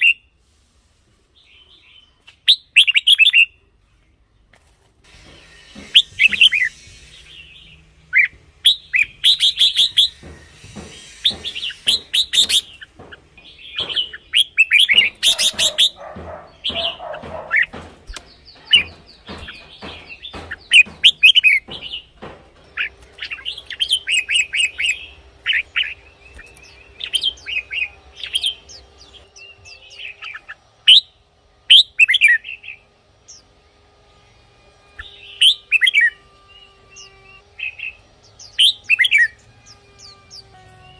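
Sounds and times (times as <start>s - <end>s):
bulbul whistled song: 5.4s - 12.9s.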